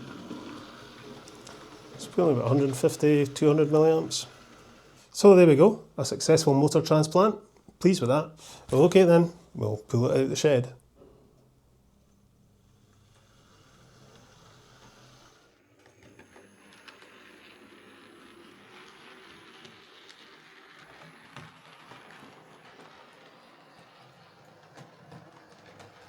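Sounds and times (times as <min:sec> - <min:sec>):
model locomotive motor whirr: 0:00.0 - 0:05.7, 0:12.6 - 0:26.0.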